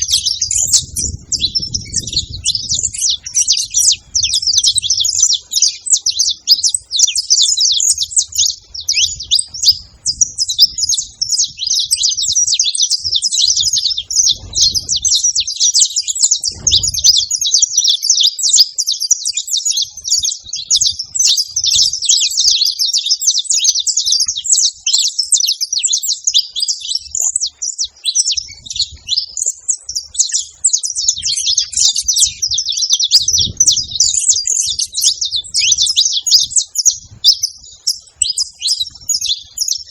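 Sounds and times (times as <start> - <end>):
dull low thumps: 0.0 - 5.2, 13.0 - 15.4, 16.4 - 17.2, 33.2 - 35.8
finches chirping: 0.0 - 39.9.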